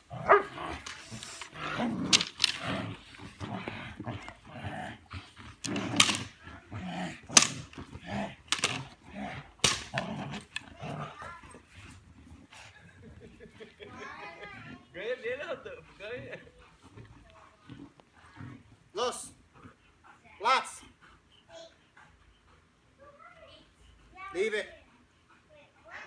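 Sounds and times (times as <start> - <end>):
dog barking: 0.2 - 0.8.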